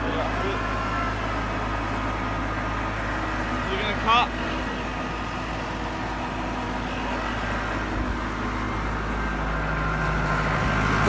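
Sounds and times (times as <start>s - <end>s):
grain auger working: 0.0s - 11.0s
tractor engine running: 0.0s - 11.0s.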